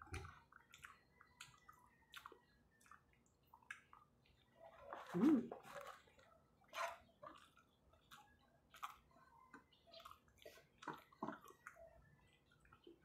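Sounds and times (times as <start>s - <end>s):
mouth chewing clicks and smacks: 0.0s - 6.0s.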